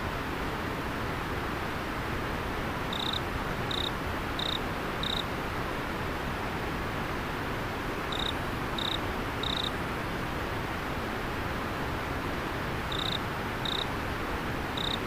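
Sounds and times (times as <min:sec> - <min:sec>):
cricket chirping: 0:02.9 - 0:05.3, 0:08.1 - 0:09.8, 0:12.9 - 0:13.9, 0:14.8 - 0:15.0.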